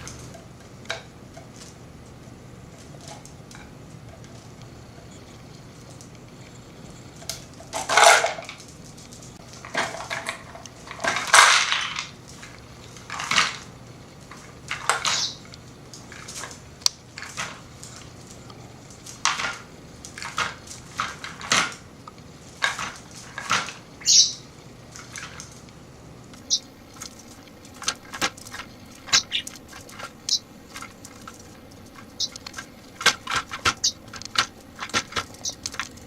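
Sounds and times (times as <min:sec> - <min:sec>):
budgie rattling a toy: 0:07.1 - 0:25.7, 0:26.3 - 0:36.0.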